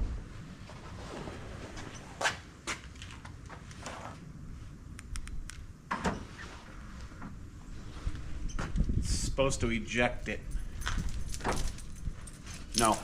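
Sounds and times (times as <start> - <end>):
faint low rumble: 0.0 - 2.0.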